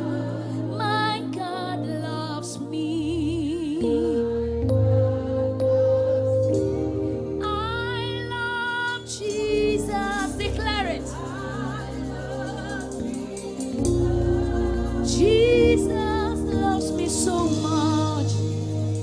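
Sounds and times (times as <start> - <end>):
person singing: 5.5 - 18.4.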